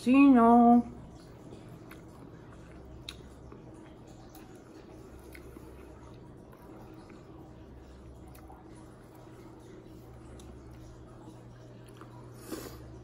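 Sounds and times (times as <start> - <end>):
quiet chewing of food: 1.0 - 13.0.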